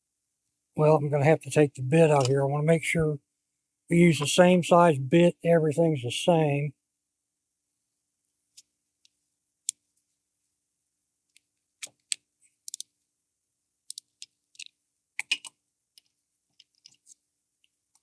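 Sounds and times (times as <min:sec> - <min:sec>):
small metal clicks and taps: 0:11.3 - 0:12.9, 0:13.9 - 0:17.2.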